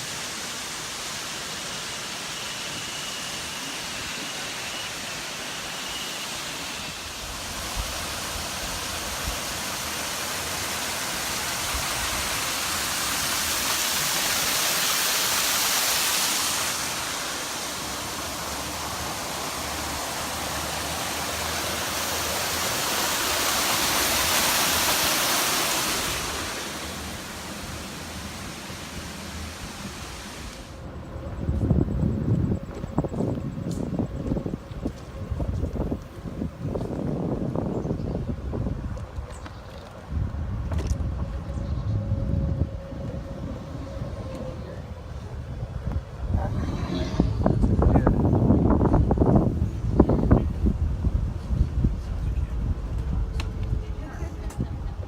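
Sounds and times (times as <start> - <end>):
waterfall rushing: 0.0 - 30.7.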